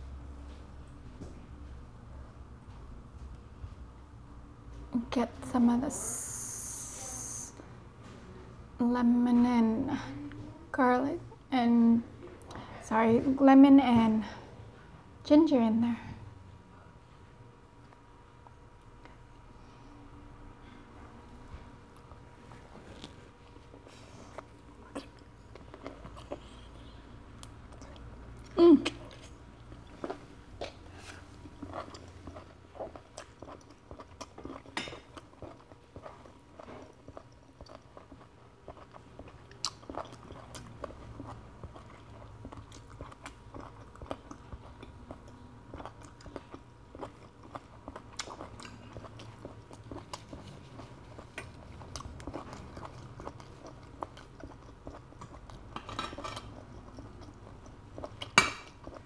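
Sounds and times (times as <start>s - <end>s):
chewing with wet mouth smacks: 22.8s - 59.0s.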